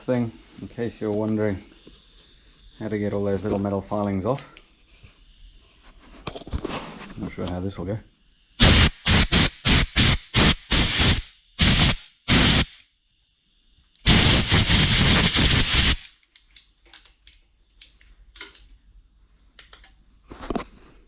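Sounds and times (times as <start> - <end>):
compressed air blow gun blasts: 8.6 - 12.8, 14.0 - 16.2.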